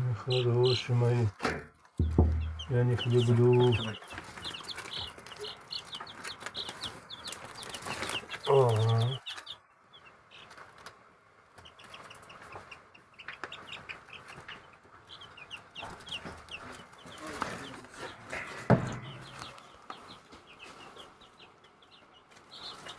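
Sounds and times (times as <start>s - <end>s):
chicks peeping: 0.0s - 22.9s
sharp knock: 1.4s - 3.3s, 18.7s - 19.5s.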